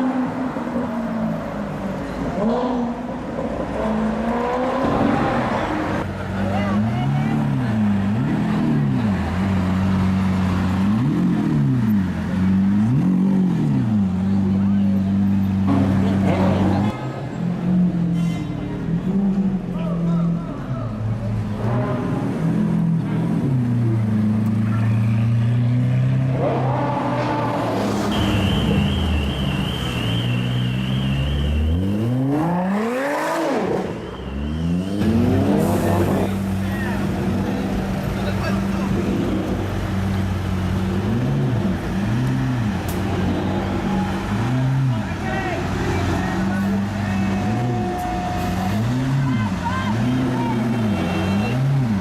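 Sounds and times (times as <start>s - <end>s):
car engine revving: 21.3s - 52.0s.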